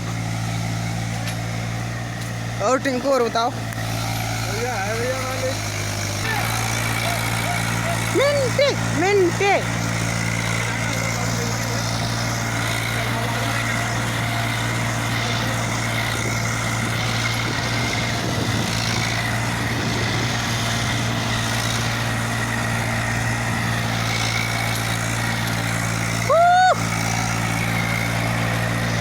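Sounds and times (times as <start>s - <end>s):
tractor diesel engine running: 0.0s - 29.0s.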